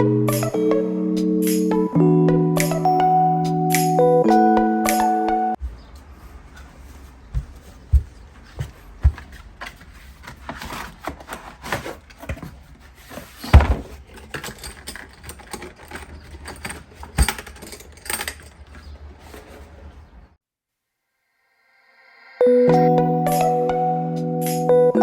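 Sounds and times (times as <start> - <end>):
things being handled: 5.6 - 20.3.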